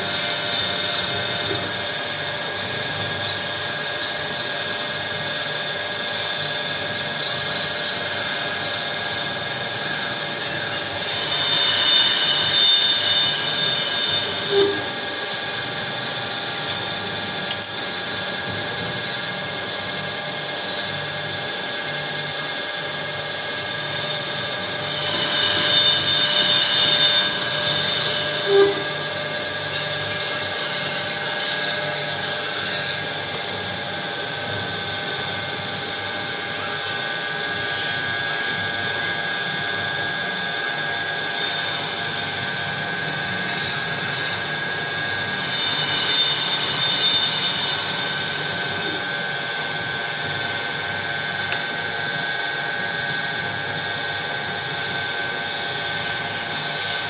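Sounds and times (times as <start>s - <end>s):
lathe whining: 21.6s - 57.0s
cutting tool hissing on workpiece: 23.8s - 29.1s.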